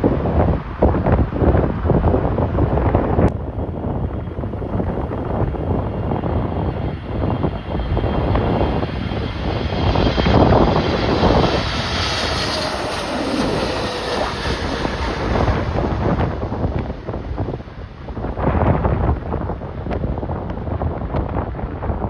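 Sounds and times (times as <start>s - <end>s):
wind buffeting microphone: 0.0s - 22.0s
jet engines whining: 3.5s - 19.8s.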